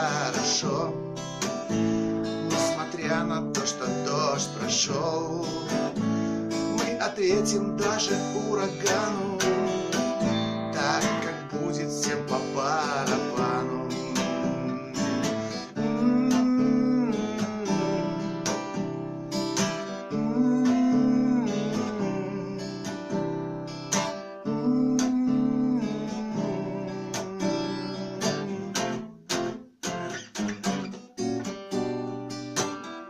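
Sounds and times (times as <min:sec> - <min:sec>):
acoustic guitar strummed: 0:00.0 - 0:33.0.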